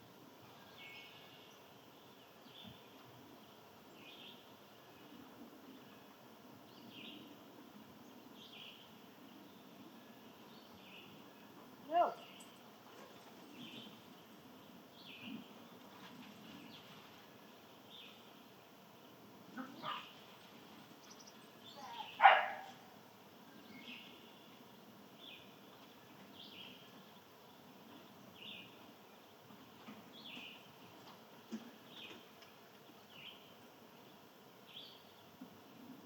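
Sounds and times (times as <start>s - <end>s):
dog barking: 19.6s - 20.0s, 22.2s - 22.8s.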